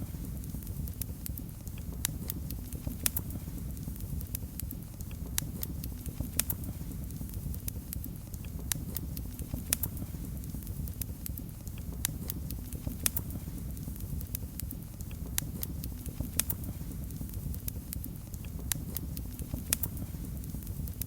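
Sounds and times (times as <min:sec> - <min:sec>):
fire crackling and popping: 0:00.0 - 0:21.0
low rumble of flames: 0:00.0 - 0:21.0.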